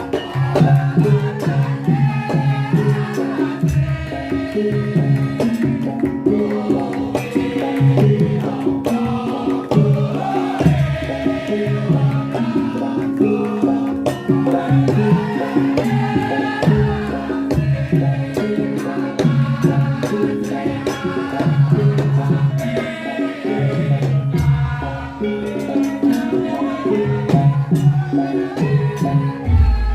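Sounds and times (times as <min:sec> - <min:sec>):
person singing: 0:23.4 - 0:29.9
drum strokes: 0:23.9 - 0:29.9.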